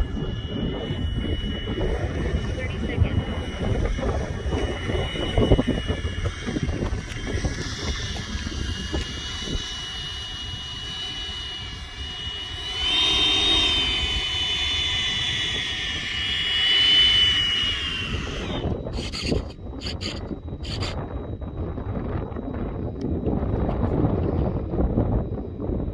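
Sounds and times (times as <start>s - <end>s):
model jet fan whining: 0.0s - 25.9s
wind on microphone: 0.0s - 25.9s.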